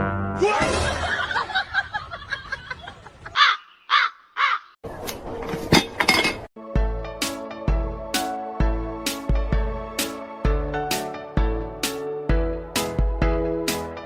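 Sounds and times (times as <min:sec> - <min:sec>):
harsh bird caws: 0:03.3 - 0:04.8.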